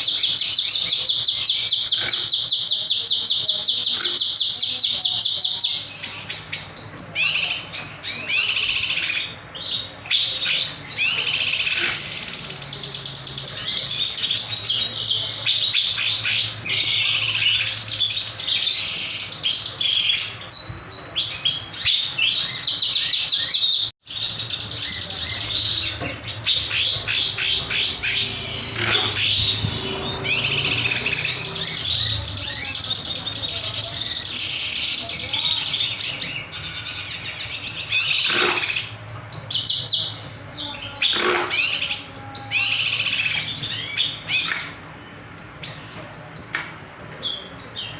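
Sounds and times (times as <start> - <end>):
songbird chirping and trilling: 0.0 - 47.9.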